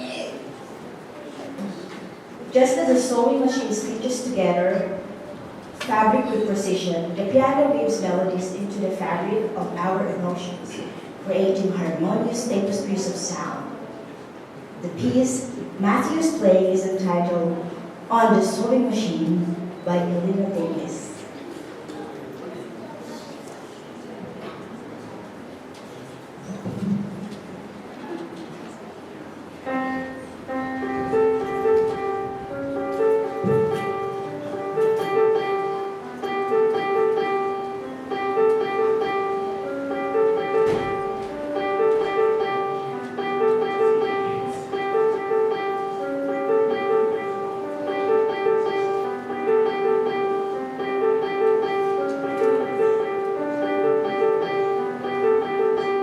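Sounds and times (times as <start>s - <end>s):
solo piano piece: 28.8s - 56.0s.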